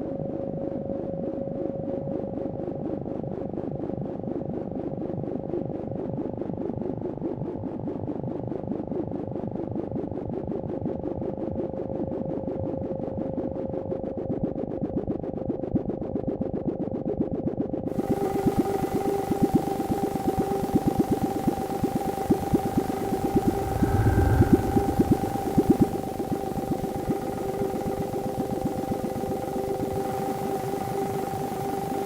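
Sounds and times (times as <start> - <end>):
grainy fluttering electronic texture: 22.0 - 26.2.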